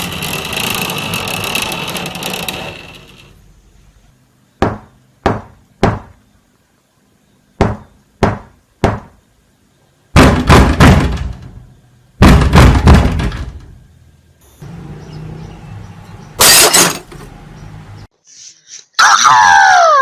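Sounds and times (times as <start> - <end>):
knocking on a door: 10.2 - 11.5, 12.2 - 13.6
loud rapid pounding on door: 10.2 - 11.5, 12.2 - 13.7.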